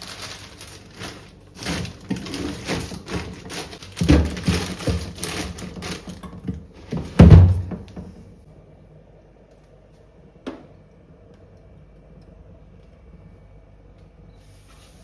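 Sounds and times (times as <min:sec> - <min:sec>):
food containers clattering on shelves: 0:00.9 - 0:08.2.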